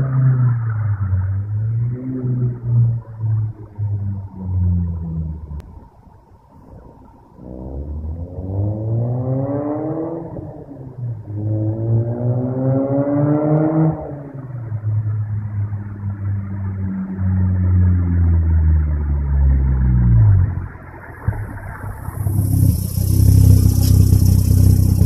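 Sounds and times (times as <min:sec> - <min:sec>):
rotary engine revving and idling: 0:07.4 - 0:10.7, 0:18.8 - 0:25.0.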